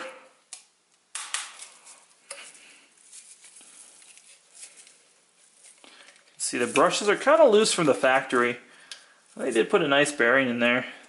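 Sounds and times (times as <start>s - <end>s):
rustling: 1.4s - 9.8s.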